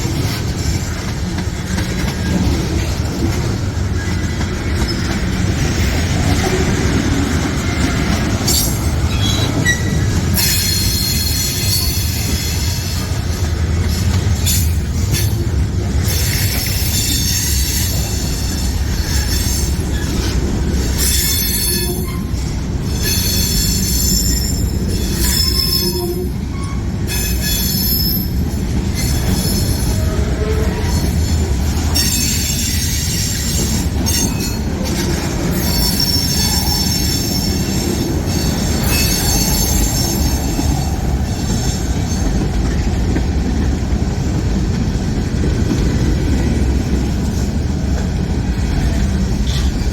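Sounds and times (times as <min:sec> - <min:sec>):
freight train rumbling: 0:00.0 - 0:49.9
train wheels squealing: 0:04.0 - 0:05.9, 0:08.4 - 0:13.2, 0:16.1 - 0:42.5.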